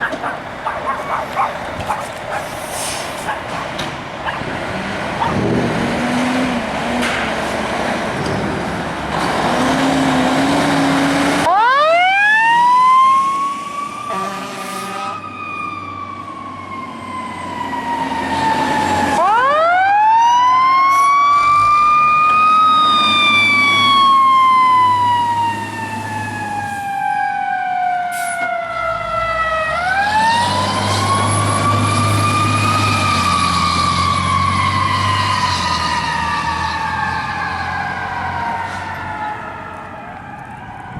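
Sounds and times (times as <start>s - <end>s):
heavy vehicles and traffic rumble: 0.0s - 40.9s
fire siren wailing: 9.1s - 40.9s.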